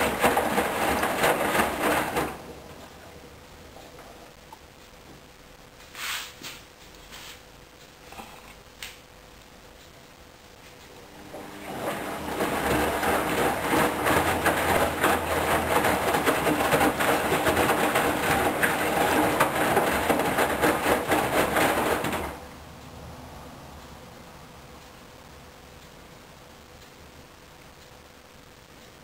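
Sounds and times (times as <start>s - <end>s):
water and laundry sloshing: 0.0s - 4.3s, 11.1s - 22.4s.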